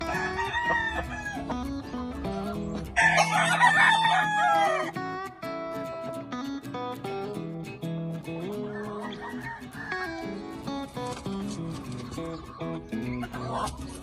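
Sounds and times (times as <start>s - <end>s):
rooster crowing: 0.0s - 1.6s, 3.0s - 5.0s, 8.7s - 10.3s
background music: 0.0s - 14.0s.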